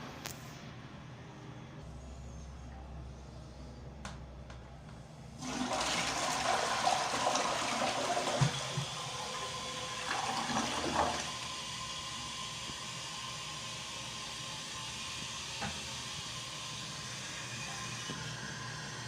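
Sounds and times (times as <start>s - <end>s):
toilet flushing with gurgling: 5.3s - 19.0s
toilet flush click: 5.4s - 11.8s.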